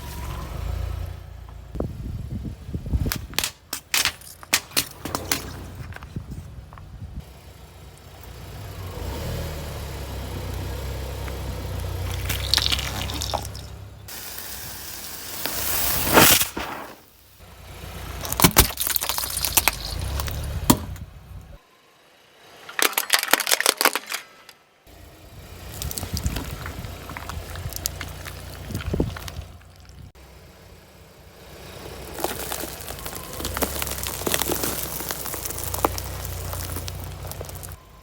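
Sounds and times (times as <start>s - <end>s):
car engine and tyre rumble: 0.0s - 23.0s, 24.4s - 38.0s
objects crunching and cracking: 3.0s - 6.4s, 12.0s - 13.7s, 18.2s - 20.8s, 22.7s - 24.6s, 25.7s - 30.2s, 32.0s - 37.8s
liquid splashing: 12.1s - 13.8s.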